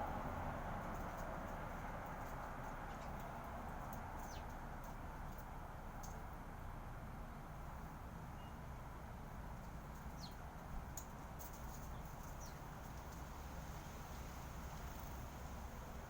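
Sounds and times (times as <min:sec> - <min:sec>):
small birds chirping: 0:04.2 - 0:04.6, 0:08.2 - 0:08.7, 0:09.6 - 0:13.5.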